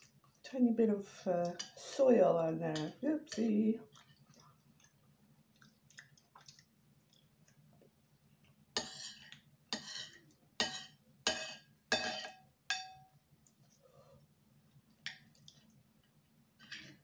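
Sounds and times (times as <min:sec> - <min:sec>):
utensil clinking against a dish: 0:08.8 - 0:13.2.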